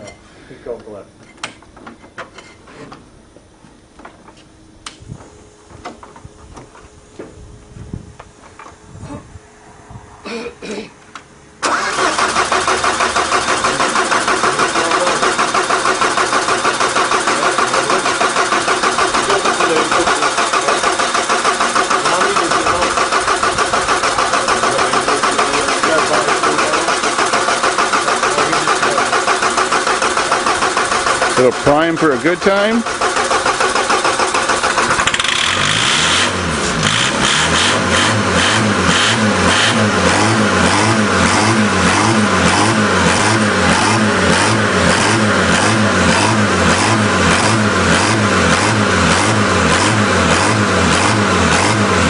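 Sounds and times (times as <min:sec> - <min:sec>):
diesel engine running: 0:11.4 - 0:52.0.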